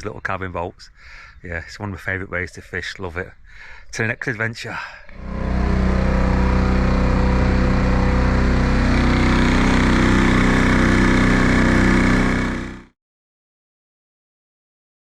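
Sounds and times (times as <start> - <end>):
boat rushing through water: 5.2 - 12.4
outboard motor buzzing drone: 5.2 - 12.9.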